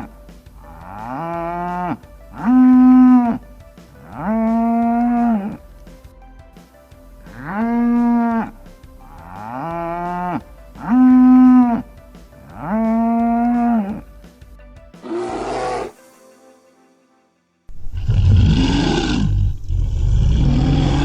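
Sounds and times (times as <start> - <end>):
cattle mooing: 15.0 - 15.9.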